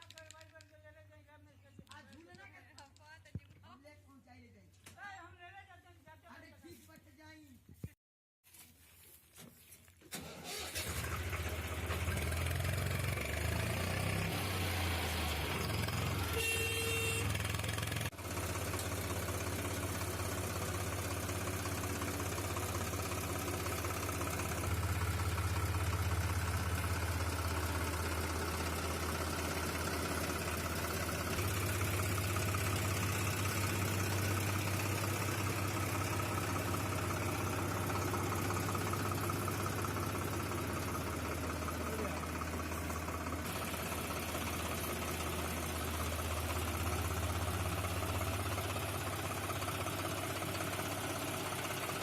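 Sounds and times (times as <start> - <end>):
tractor engine running: 10.1 - 52.0.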